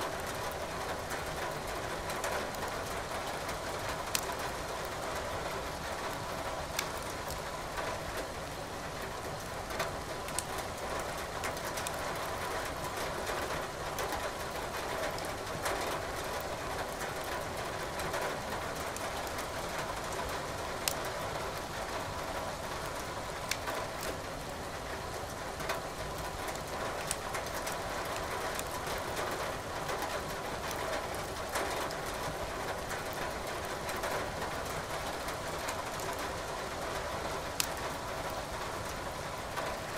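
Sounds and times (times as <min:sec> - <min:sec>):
firewood crackling: 0:04.1 - 0:04.4, 0:23.5 - 0:23.7, 0:26.5 - 0:28.7, 0:37.6 - 0:37.8.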